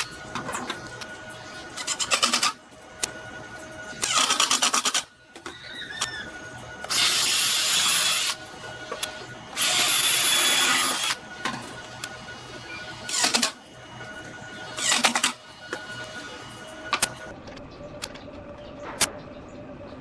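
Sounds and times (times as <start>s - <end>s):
small power tool running: 4.0s - 5.1s, 6.0s - 8.6s, 9.2s - 11.2s, 12.7s - 13.6s, 14.4s - 17.3s.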